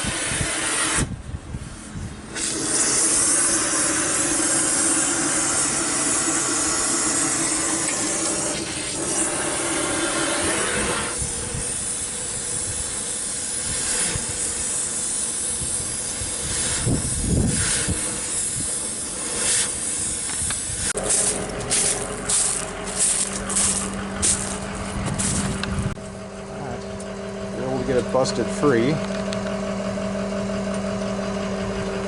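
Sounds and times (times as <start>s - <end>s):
saw cutting metal pipe: 0.0s - 1.1s, 2.3s - 24.6s, 27.6s - 29.1s.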